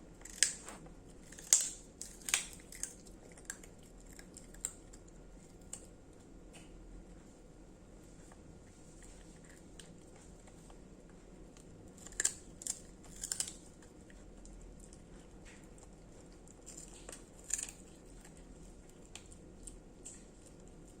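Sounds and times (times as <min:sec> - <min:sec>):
dogs crunching crackers: 0:00.1 - 0:07.2, 0:08.1 - 0:21.0.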